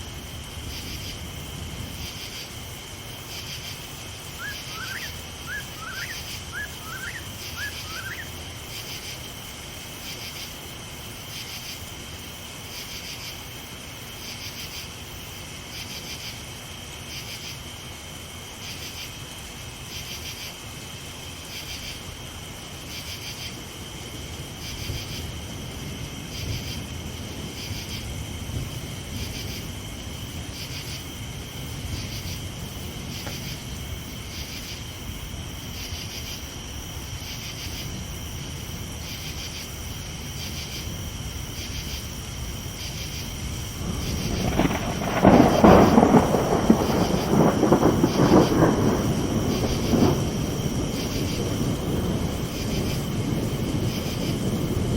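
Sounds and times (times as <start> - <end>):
distant thunder: 0.0 - 9.0, 24.2 - 36.3, 40.6 - 54.9
night insects chirping: 0.0 - 54.9
steady hiss: 0.0 - 54.9.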